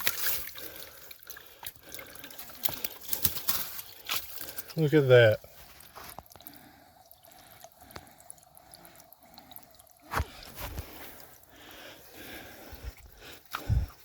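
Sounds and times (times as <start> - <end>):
faint dripping water: 0.0 - 14.0
heavy breathing: 6.4 - 14.0.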